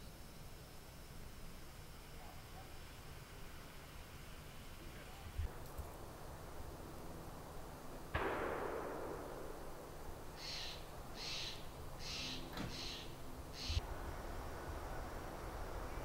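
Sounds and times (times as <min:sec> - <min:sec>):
sharp bang with echo: 0:08.1 - 0:10.0
bird harsh raspy calls: 0:10.4 - 0:13.8.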